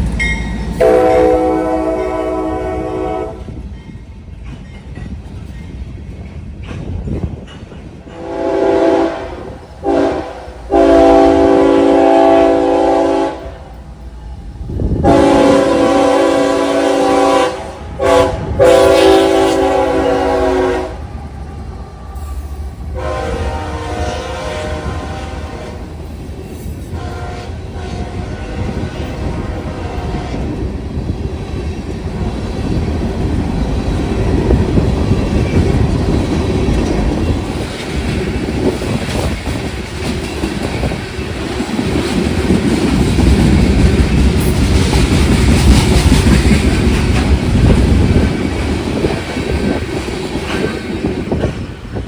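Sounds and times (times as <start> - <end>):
train rumble and rail clatter: 0.0 - 52.0
locomotive air horn blasts: 0.8 - 3.5, 8.2 - 13.8, 15.0 - 21.0, 23.0 - 25.9, 27.0 - 30.4.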